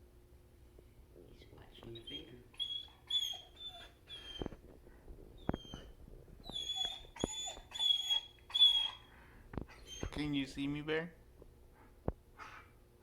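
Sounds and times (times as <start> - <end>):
dog whining: 1.9 - 4.6, 5.4 - 9.1, 9.7 - 10.3, 12.4 - 12.7.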